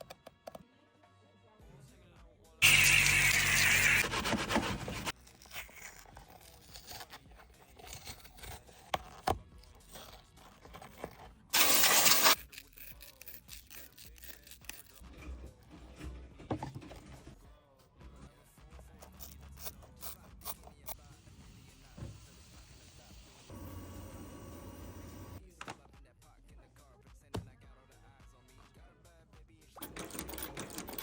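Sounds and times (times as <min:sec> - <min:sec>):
rough scraping: 0:02.6 - 0:17.4
scratching and handling noises: 0:02.6 - 0:17.5, 0:18.8 - 0:21.0.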